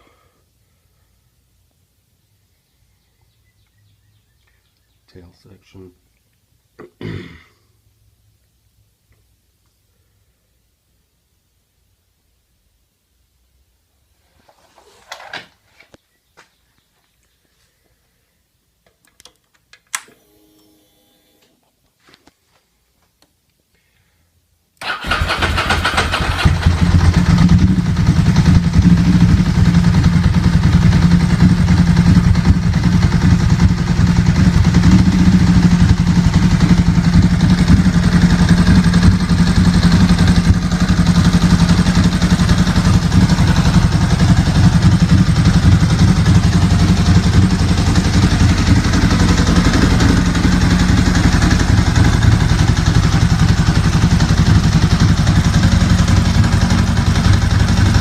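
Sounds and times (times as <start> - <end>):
motorcycle engine running: 24.8 - 58.0.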